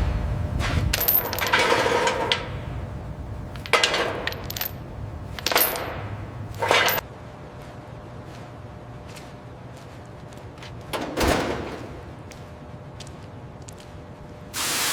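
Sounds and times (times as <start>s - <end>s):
sharp metallic clinks and clatters: 0.9s - 2.6s, 3.5s - 7.0s.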